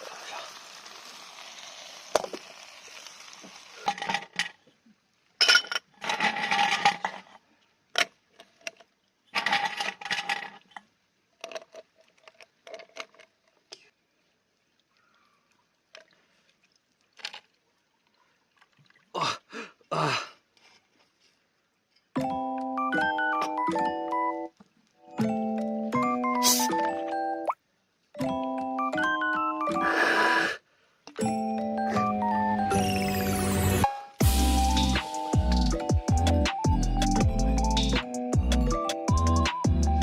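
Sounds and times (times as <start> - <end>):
food sizzling in a pan: 0.0 - 3.9
cookware clinking and scraping: 5.4 - 7.2.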